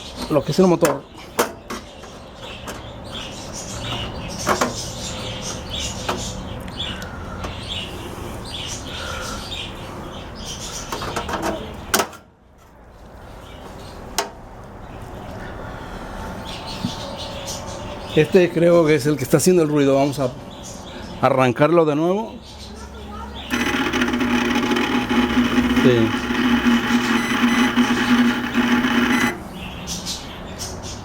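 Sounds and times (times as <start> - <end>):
sharp clicks: 23.5 - 29.4
metallic squeaks and scraping: 23.5 - 29.6.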